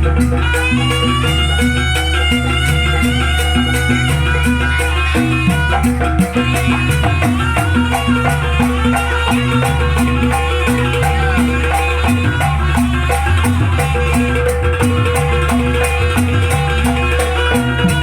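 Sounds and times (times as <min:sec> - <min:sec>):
ringing metallophone notes: 0:00.0 - 0:18.0
sharp percussion hits: 0:00.0 - 0:18.0.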